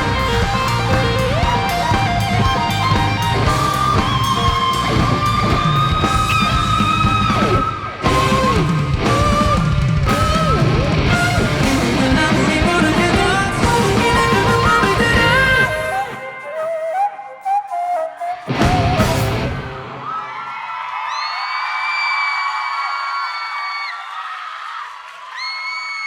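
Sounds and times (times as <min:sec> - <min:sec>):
live rock band playing: 0:00.0 - 0:16.2, 0:18.5 - 0:20.0
electric guitar: 0:00.0 - 0:16.4, 0:18.5 - 0:20.1.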